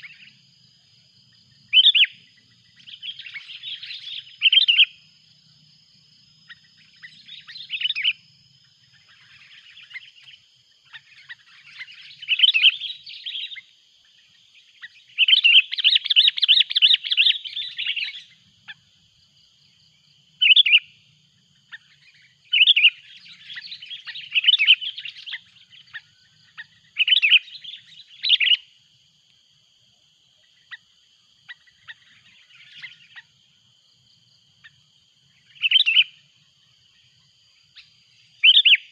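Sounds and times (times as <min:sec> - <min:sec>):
bulbul chattering calls: 0:01.7 - 0:05.0, 0:06.5 - 0:08.2, 0:08.9 - 0:13.6, 0:14.8 - 0:18.9, 0:20.4 - 0:20.9, 0:21.7 - 0:28.6, 0:31.5 - 0:33.3, 0:35.4 - 0:36.3, 0:37.8 - 0:38.9.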